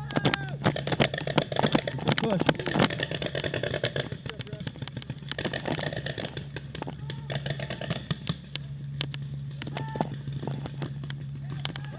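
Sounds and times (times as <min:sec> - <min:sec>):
distant shouts: 0:00.0 - 0:03.2, 0:06.8 - 0:08.8, 0:09.5 - 0:10.6, 0:11.2 - 0:11.9
steady low hum: 0:00.0 - 0:11.9.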